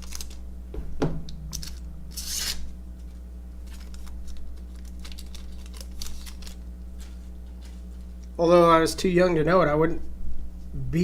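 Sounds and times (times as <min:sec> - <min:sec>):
cards sliding and rubbing: 0:02.1 - 0:02.6.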